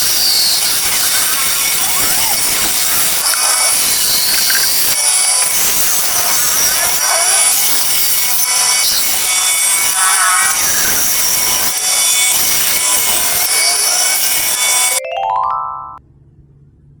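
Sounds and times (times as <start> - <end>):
woodworking tool cutting wood: 0.0 - 15.0
rising chime-like notes: 15.0 - 16.0.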